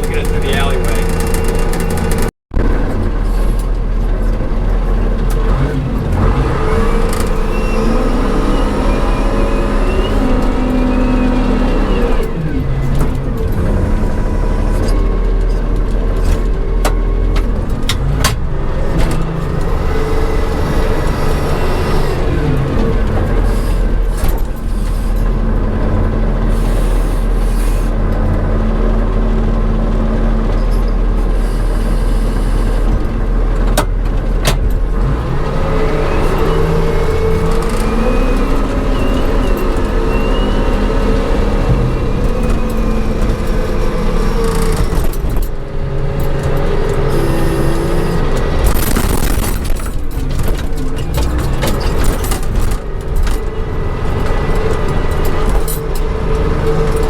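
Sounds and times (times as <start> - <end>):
loader engine running under load: 0.0 - 57.0.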